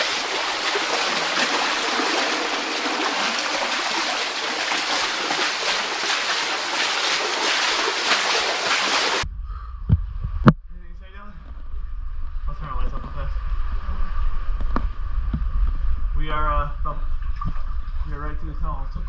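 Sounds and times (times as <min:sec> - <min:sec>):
water flowing in a tunnel: 0:00.0 - 0:09.2.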